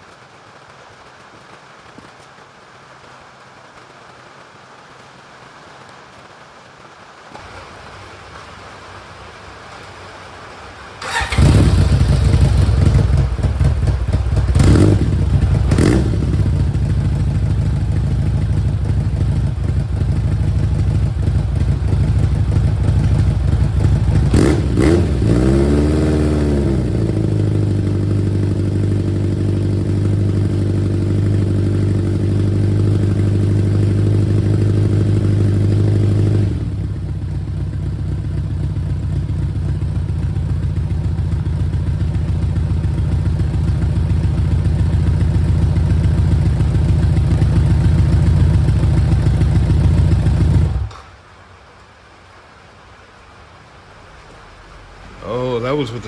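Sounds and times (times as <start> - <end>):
motorcycle engine revving and idling: 11.0 - 51.0.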